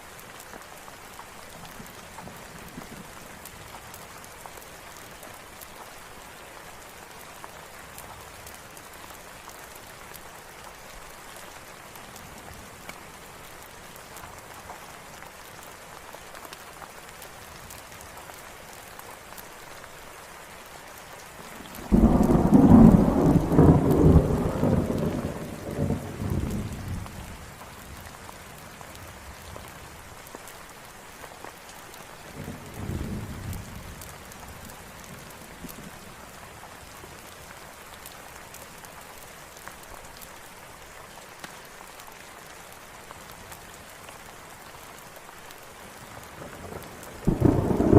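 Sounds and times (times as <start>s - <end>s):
steady rain falling: 0.0s - 47.9s
thunder clap and rumble: 21.8s - 27.0s, 46.6s - 47.9s.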